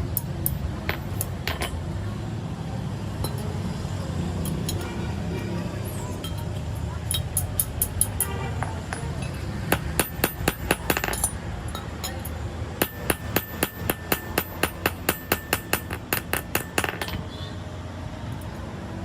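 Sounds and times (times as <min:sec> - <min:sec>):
hammer striking metal: 0:07.1 - 0:17.4.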